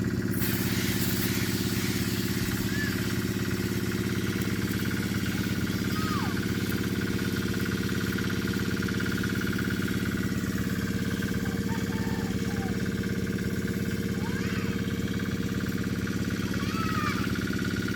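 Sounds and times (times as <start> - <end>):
diesel engine chugging: 0.0 - 17.9.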